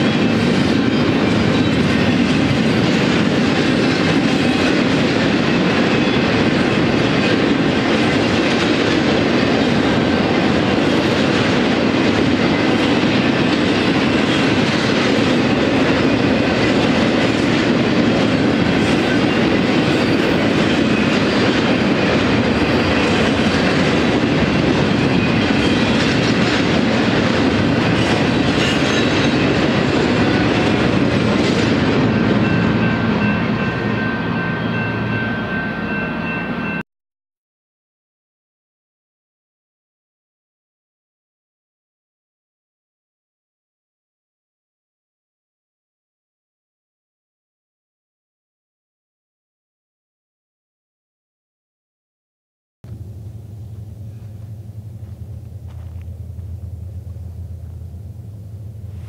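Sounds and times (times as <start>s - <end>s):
freight train wheels rumbling: 0.0s - 36.8s, 52.8s - 59.0s.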